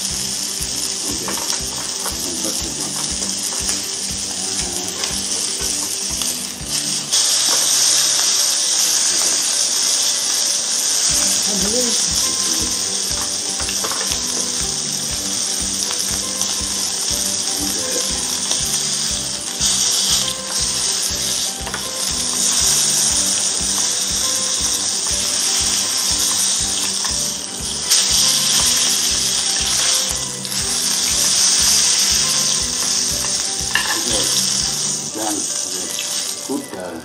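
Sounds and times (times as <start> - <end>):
background music with steady beat: 0.0 - 37.0
meat sizzling in a frying pan: 0.0 - 37.0.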